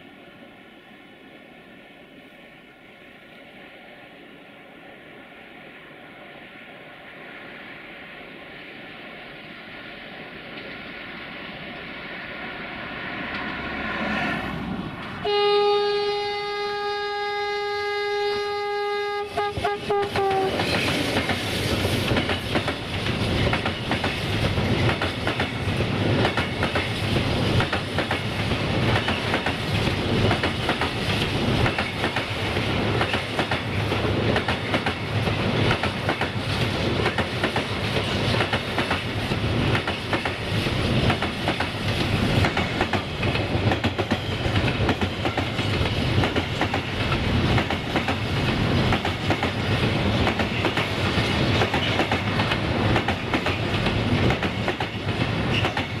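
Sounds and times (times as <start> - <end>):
continuous train rumble: 0.0 - 56.0
train wheels clicking over rail joints: 19.4 - 56.0.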